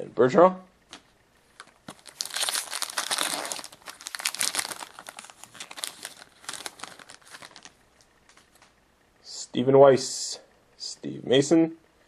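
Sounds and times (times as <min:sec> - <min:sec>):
foil wrapper crinkling: 0:01.6 - 0:08.5.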